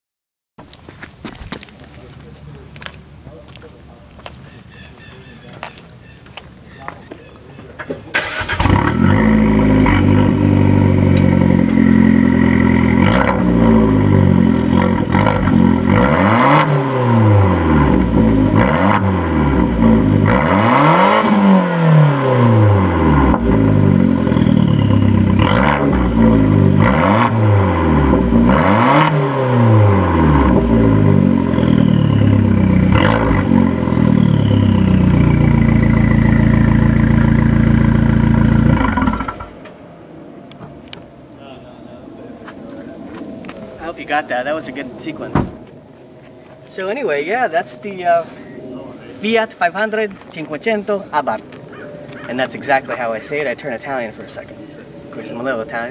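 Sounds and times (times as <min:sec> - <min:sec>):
car engine idling and revving: 0:08.1 - 0:41.4
faint turbo whistle: 0:24.3 - 0:25.2, 0:31.5 - 0:32.6, 0:34.1 - 0:35.2.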